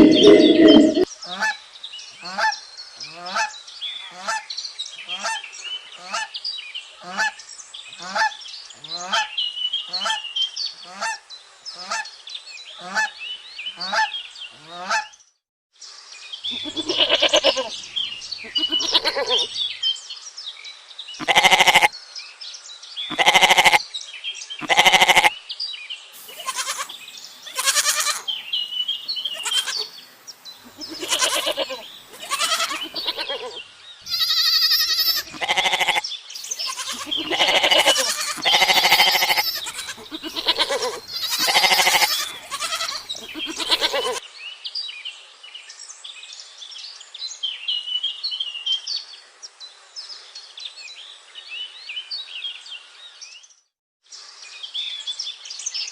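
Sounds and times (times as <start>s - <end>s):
faint chirping: 0.0s - 1.1s, 16.5s - 19.6s, 26.2s - 44.2s
livestock bleating: 16.5s - 19.6s, 21.2s - 21.9s, 23.1s - 23.8s, 24.6s - 25.3s, 26.2s - 30.0s, 30.6s - 44.2s.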